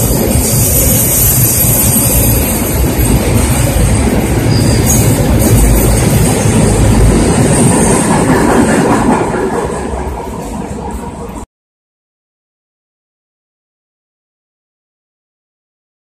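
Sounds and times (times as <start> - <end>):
freight train wheels rumbling: 0.0 - 11.4.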